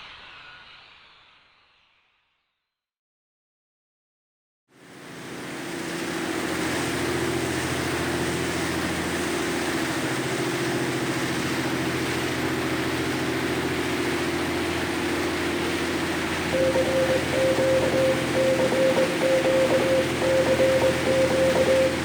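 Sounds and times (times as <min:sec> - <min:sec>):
low mechanical hum: 0:06.0 - 0:22.0.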